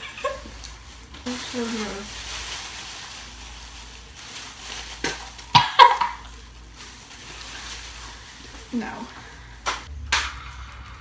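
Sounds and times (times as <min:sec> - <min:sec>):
girl coughing and gagging: 0:05.5 - 0:06.2.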